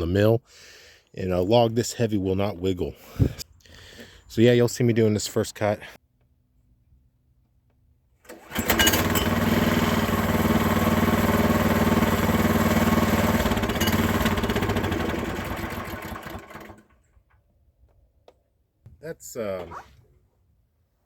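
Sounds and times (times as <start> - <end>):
small gasoline engine running: 8.3 - 17.0.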